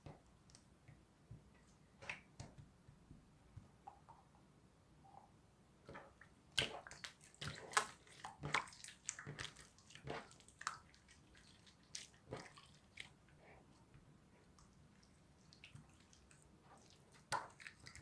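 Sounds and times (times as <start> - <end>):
slime squelching: 5.9 - 18.0.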